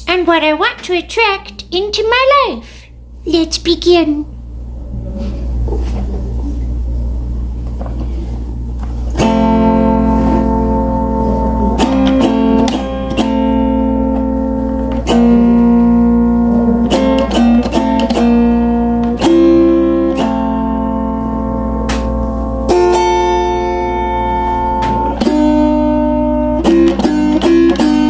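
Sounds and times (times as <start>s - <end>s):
low steady hum: 0.0s - 26.6s
guitar chords: 8.5s - 28.0s.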